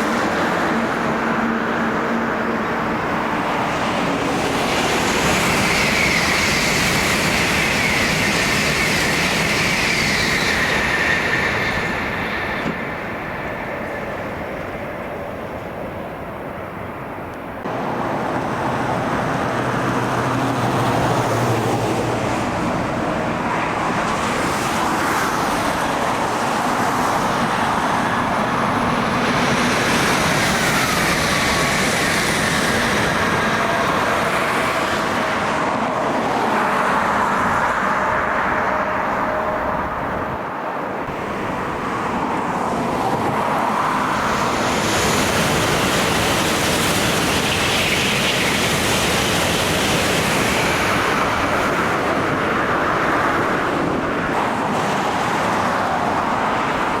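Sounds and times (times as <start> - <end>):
highway traffic passing: 0.0 - 57.0.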